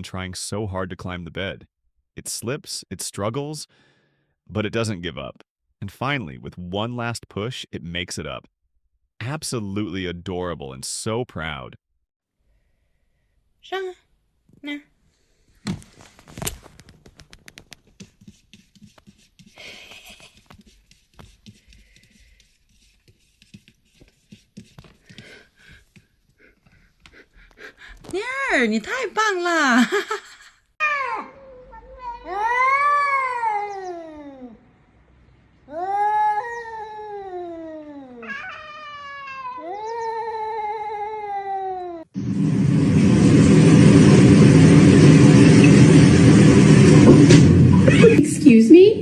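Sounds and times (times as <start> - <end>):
cloth rustle: 15.6 - 18.0
kitten claws on fabric: 15.6 - 27.2
cat yowling: 30.8 - 34.6, 35.7 - 42.1.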